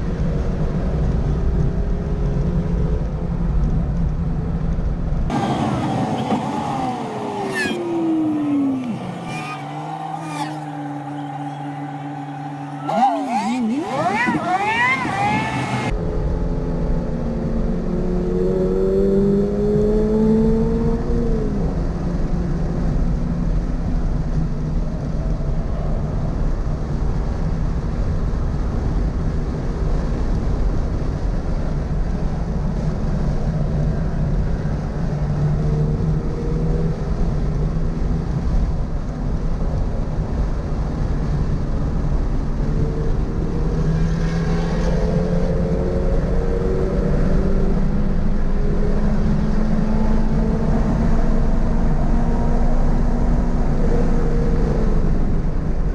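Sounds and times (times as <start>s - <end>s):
road and wind noise: 0.0s - 55.9s
car engine revving: 5.3s - 24.1s, 34.0s - 55.9s.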